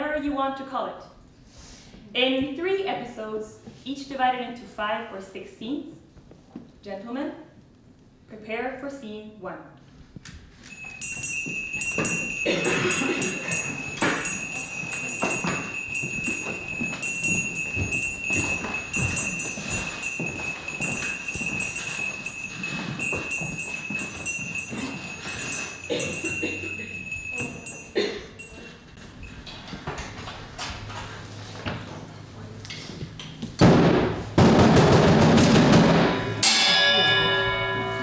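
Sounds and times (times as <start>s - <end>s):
knocks and shuffles of movement: 10.4s - 36.4s
jingling: 10.6s - 33.5s, 35.4s - 38.0s
high metallic ringing: 10.6s - 38.0s.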